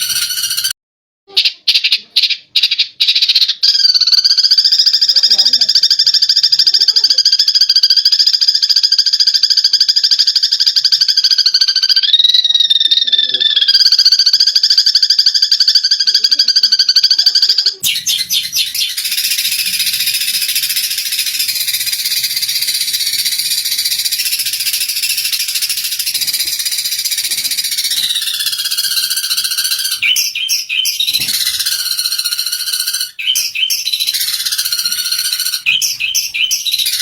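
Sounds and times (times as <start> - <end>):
sparrows buzzing trill: 0.0 - 0.7, 14.8 - 37.0
sparrows chattering chirps: 0.0 - 0.7, 13.9 - 37.0.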